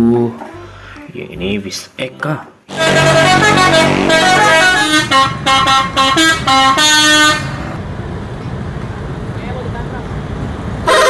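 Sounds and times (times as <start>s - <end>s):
steady low rumble: 2.7s - 5.6s
bus horn playing stepped notes: 2.7s - 7.8s.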